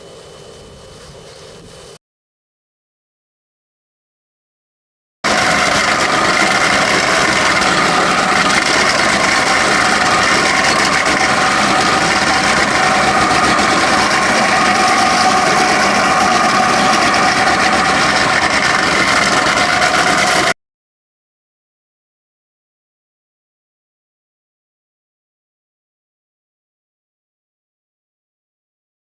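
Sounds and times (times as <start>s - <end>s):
grinder motor whine: 5.3s - 20.6s
grinding noise: 5.3s - 20.6s.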